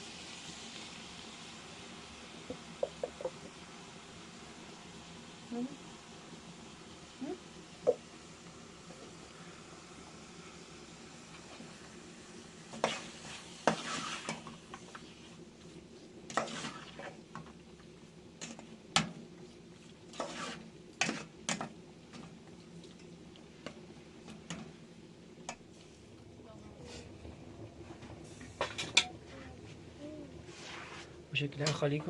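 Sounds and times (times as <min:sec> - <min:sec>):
steady low hum: 0:17.0 - 0:32.0.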